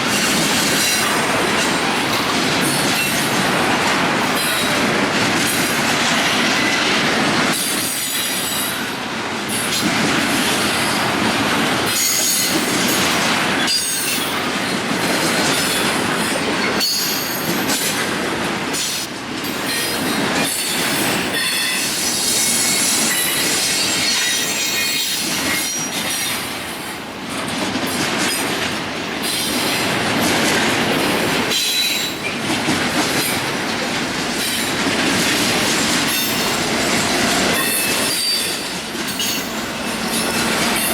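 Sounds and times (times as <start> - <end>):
train wheels clacking on rails: 0.0 - 40.9.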